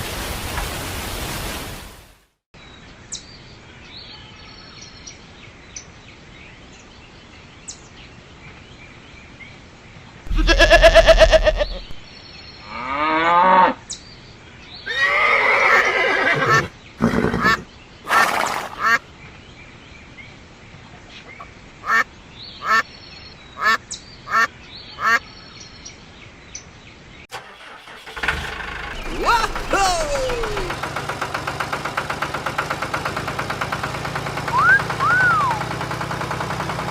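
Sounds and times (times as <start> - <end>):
faint birdsong: 2.6 - 28.0
ducks quacking: 10.3 - 12.0, 18.1 - 19.0, 21.8 - 22.8, 23.6 - 25.2.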